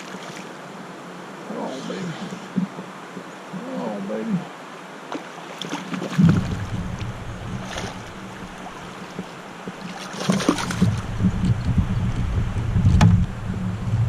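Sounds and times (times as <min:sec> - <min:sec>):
water splashing at a kayak: 0:00.0 - 0:03.8, 0:04.5 - 0:14.0
wind rumbling on microphone: 0:06.0 - 0:14.0.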